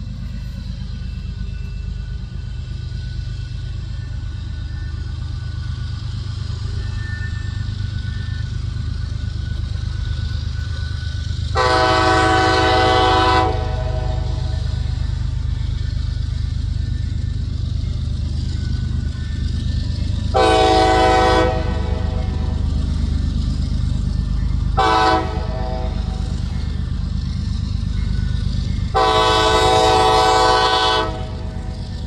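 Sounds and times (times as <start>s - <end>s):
passing train rumbling: 0.0s - 32.0s
locomotive air horn blasts: 11.5s - 15.0s, 20.3s - 22.7s, 24.7s - 26.6s, 28.9s - 31.8s.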